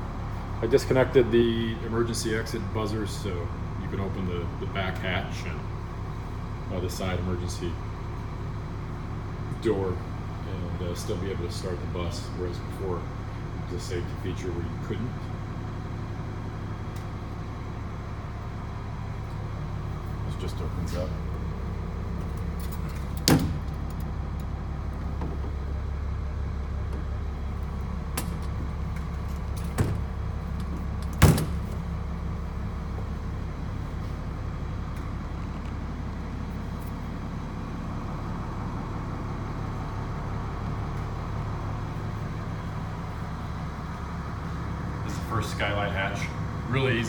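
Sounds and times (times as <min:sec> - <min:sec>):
bus diesel engine idling: 0:00.0 - 0:47.0
sharp knocks from bus fittings: 0:22.8 - 0:24.1, 0:28.1 - 0:31.9.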